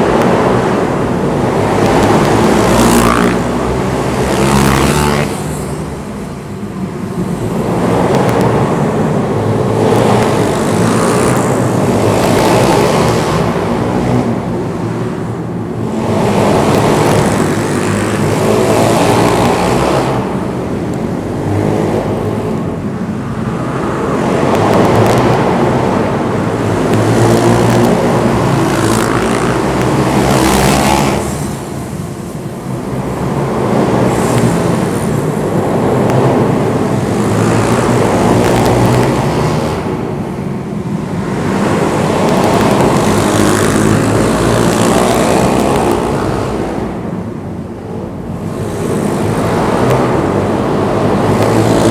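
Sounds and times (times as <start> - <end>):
pit bike engine revving: 1.4 - 5.7, 9.7 - 14.0, 15.9 - 20.4, 26.5 - 31.7, 36.2 - 40.0, 41.1 - 46.8.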